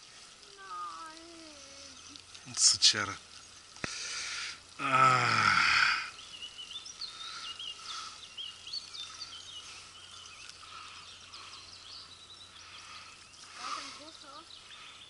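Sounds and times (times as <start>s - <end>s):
faint background noise: 0.0s - 15.0s
small birds chirping: 0.0s - 15.0s.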